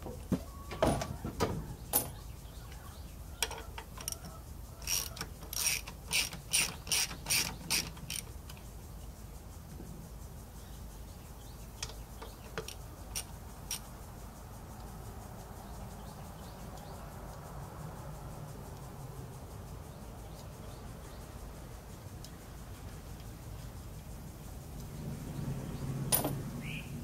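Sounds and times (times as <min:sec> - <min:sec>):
ratchet wrench clicking: 0:03.4 - 0:08.6, 0:11.8 - 0:13.9.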